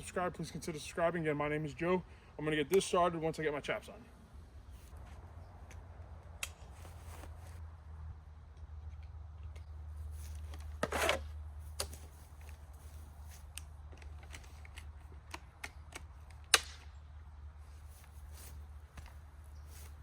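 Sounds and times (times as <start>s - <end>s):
buckle clicks and snaps: 13.5s - 16.9s.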